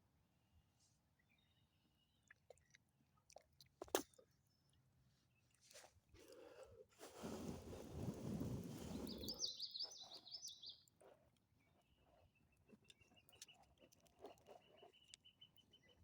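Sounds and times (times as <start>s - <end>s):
songbird chirping: 8.7s - 16.0s.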